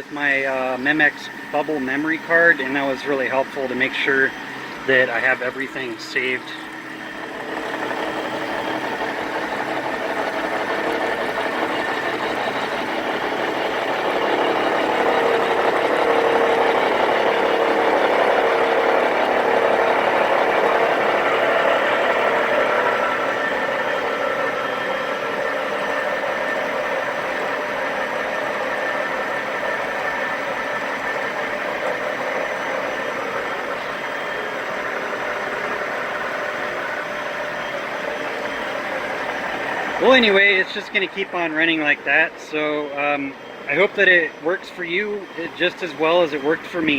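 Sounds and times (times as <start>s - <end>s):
milling machine running: 0.0s - 46.9s
steady tones: 0.0s - 46.9s.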